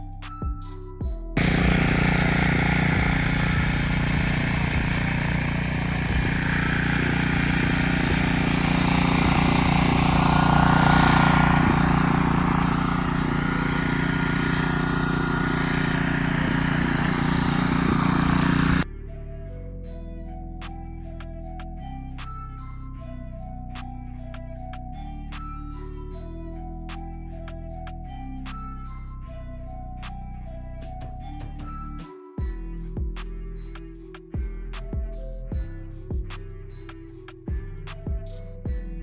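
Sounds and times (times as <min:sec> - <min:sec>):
pressure washer motor drone: 0:01.4 - 0:18.9.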